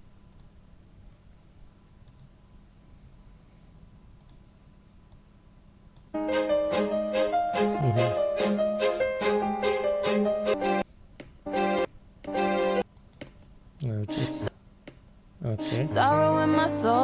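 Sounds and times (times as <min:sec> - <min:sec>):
computer mouse clicks: 0:02.0 - 0:02.4, 0:04.2 - 0:04.5
piano-like keyboard music: 0:06.2 - 0:10.8, 0:11.5 - 0:12.8, 0:14.0 - 0:14.5, 0:15.4 - 0:17.0.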